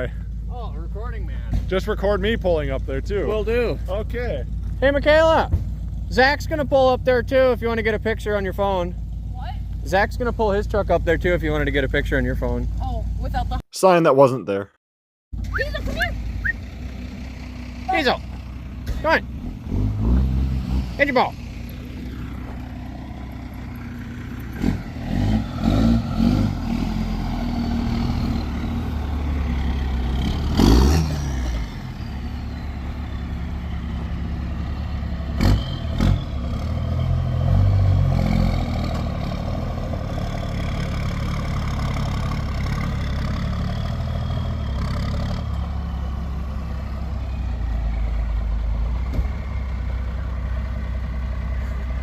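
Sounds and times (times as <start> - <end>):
loud thump: 5.4 - 5.8, 49.1 - 49.4
pickup truck engine running: 20.6 - 30.6.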